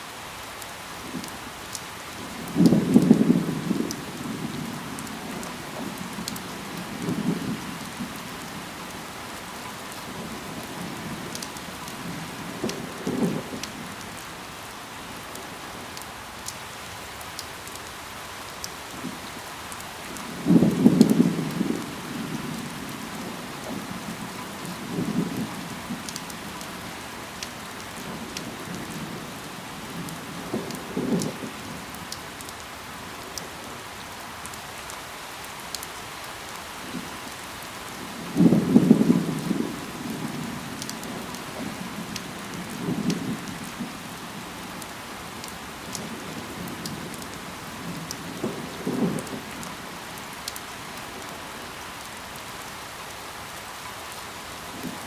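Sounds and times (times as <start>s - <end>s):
rain falling on leaves: 0.0s - 55.0s.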